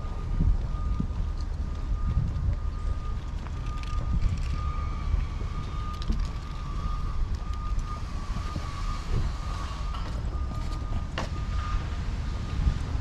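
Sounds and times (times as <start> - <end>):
passing traffic: 0.0 - 13.0
wind on microphone: 0.0 - 13.0.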